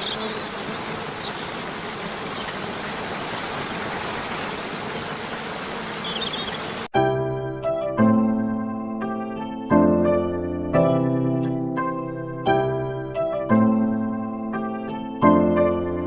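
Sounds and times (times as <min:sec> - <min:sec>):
faint high chirps: 0:06.0 - 0:06.6
piano music: 0:07.0 - 0:16.0.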